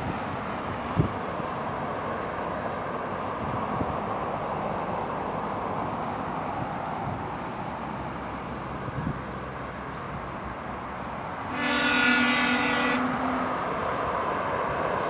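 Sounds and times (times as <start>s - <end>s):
freight train rumbling: 0.0s - 15.0s
locomotive horn: 11.5s - 13.6s.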